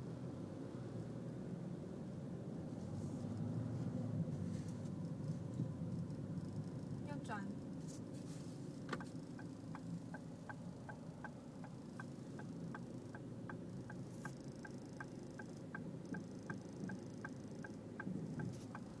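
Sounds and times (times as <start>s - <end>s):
diesel engine humming: 5.0s - 19.0s.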